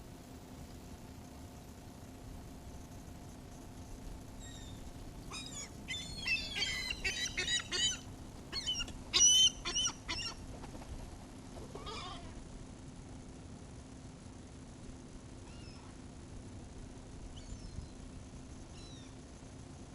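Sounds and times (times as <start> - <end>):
seagulls squawking: 5.4 - 8.0, 8.6 - 10.4.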